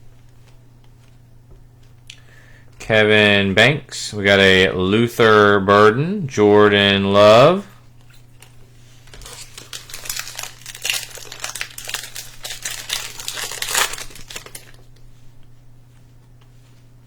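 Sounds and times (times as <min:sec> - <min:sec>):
plastic wrapper tearing and crinkling: 0:08.4 - 0:15.0.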